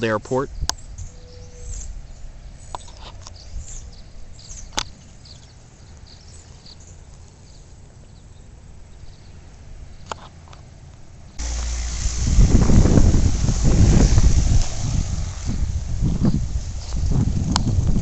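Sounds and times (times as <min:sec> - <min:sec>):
faint bird chirps: 0:00.5 - 0:09.4
low steady rumble: 0:11.4 - 0:18.0.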